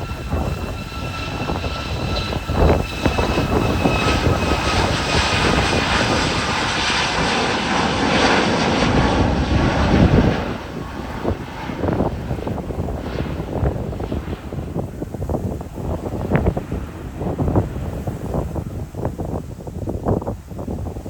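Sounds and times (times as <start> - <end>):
jet engine whine: 0.0 - 21.0
rush of jet engine noise: 0.0 - 21.0.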